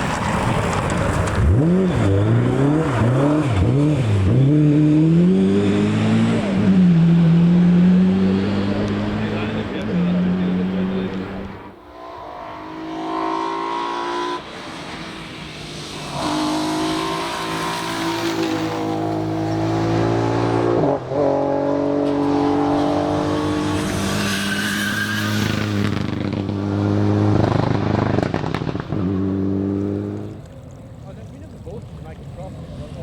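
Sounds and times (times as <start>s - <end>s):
car engine at high revs: 0.0s - 30.5s.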